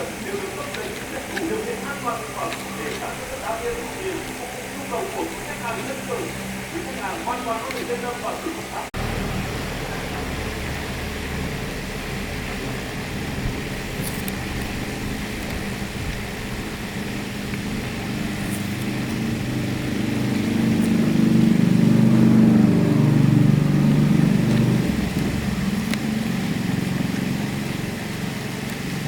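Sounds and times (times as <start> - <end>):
motor humming: 0.0 - 29.0.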